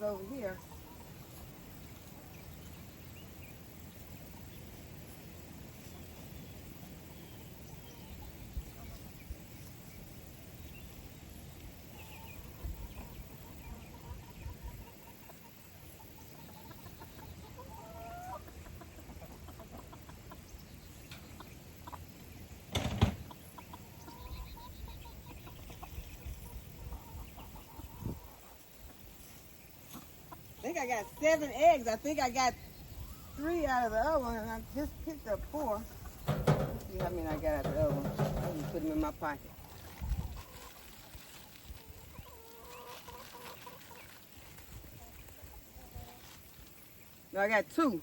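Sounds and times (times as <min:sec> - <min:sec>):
chickens clucking: 0:00.0 - 0:02.8, 0:11.8 - 0:48.0
sharp knock or clatter: 0:36.3 - 0:38.8.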